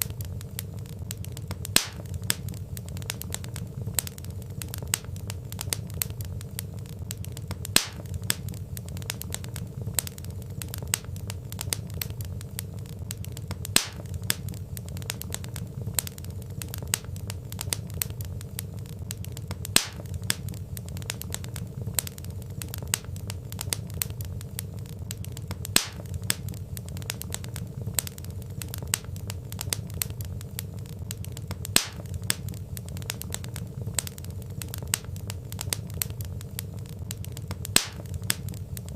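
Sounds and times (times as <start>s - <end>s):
low fire rumble: 0.0s - 38.9s
sharp fire pop: 0.0s - 38.9s
wood fire crackling: 0.0s - 38.9s.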